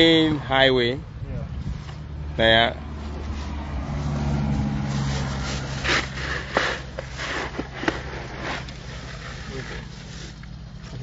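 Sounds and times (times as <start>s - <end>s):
vehicle engine running: 1.0s - 11.0s.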